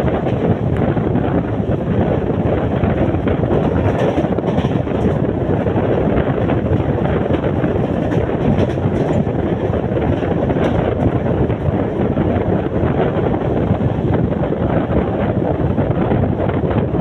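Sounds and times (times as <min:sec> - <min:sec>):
train coaches running: 0:00.0 - 0:17.0
wind buffeting microphone: 0:00.0 - 0:17.0.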